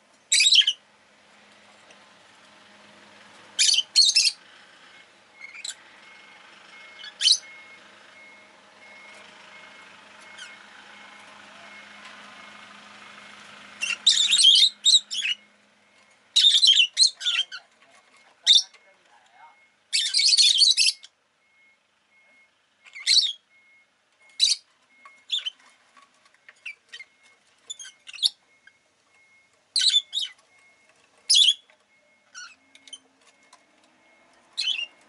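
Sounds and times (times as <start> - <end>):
faint street traffic hum: 0.0 - 35.0
lovebird chirping: 0.3 - 0.8, 3.6 - 4.4, 5.4 - 5.8, 6.9 - 7.7, 13.8 - 15.5, 16.4 - 19.0, 19.9 - 21.2, 22.8 - 23.5, 24.3 - 25.8, 26.6 - 30.6, 31.2 - 33.0, 34.5 - 35.0.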